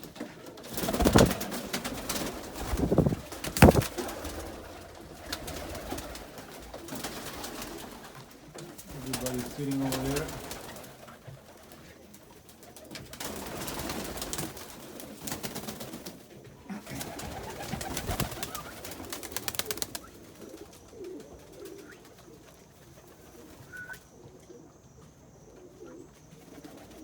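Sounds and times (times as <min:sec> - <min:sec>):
pigeons cooing: 0:00.0 - 0:27.0
rapid clicking and scuffling: 0:00.7 - 0:04.0.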